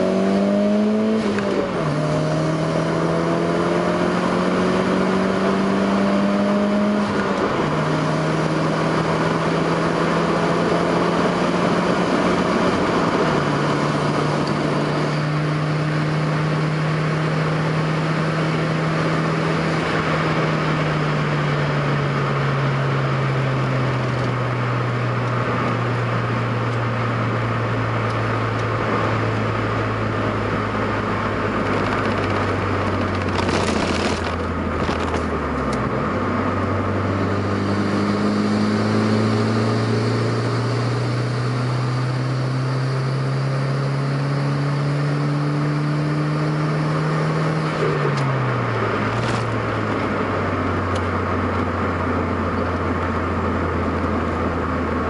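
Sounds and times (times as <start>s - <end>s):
car engine running: 0.0s - 55.0s
road and tyre noise: 0.0s - 55.0s.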